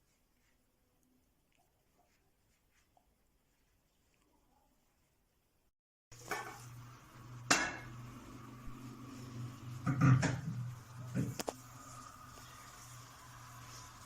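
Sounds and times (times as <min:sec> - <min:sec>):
pots and utensils clattering: 0:06.2 - 0:06.8, 0:07.4 - 0:08.0, 0:09.7 - 0:11.4.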